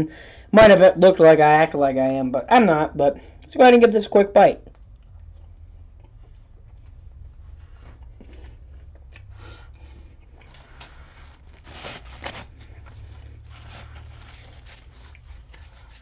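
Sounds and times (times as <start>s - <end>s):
steady low hum: 0.0s - 16.0s
person chewing food: 4.7s - 16.0s.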